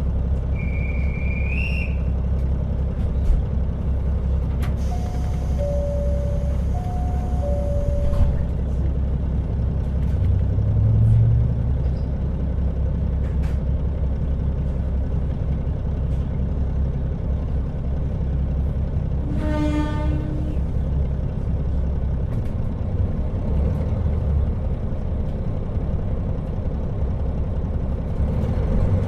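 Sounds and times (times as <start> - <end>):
diesel railcar engine and rumble: 0.0 - 29.0
pitched tone: 4.9 - 8.6.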